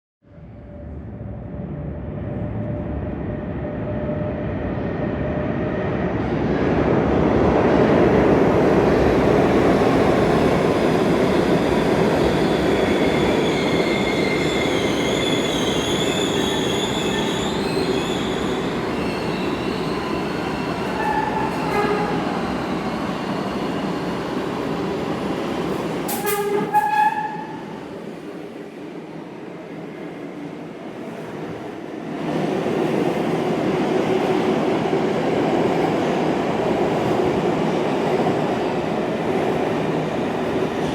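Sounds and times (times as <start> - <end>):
subway train wheels rumbling: 0.2 - 40.9
train horn blast: 21.0 - 22.4, 26.1 - 27.7.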